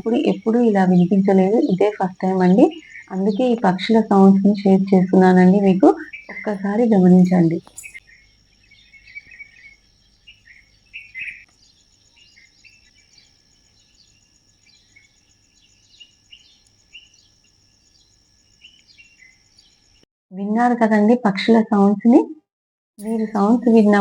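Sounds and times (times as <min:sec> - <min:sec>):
birds chirping and calling: 0:00.0 - 0:20.0, 0:23.0 - 0:24.0.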